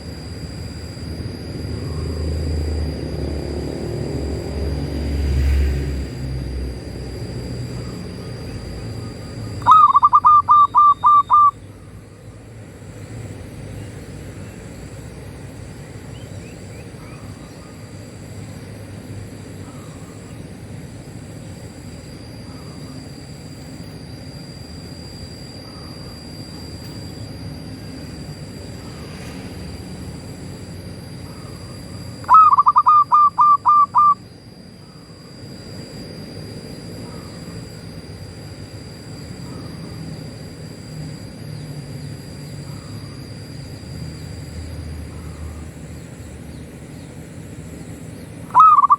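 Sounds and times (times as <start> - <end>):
steady high tone: 7.0 - 13.4, 19.3 - 40.0, 42.6 - 48.9
dove cooing: 7.8 - 12.0, 31.2 - 34.2, 48.5 - 48.9.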